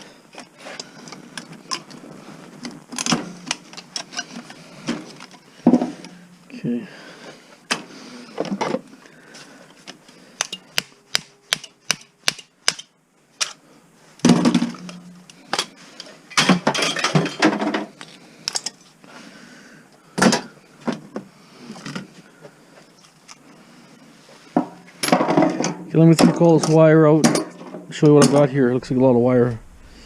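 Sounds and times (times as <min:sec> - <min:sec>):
metal parts clattering: 0:16.3 - 0:17.8.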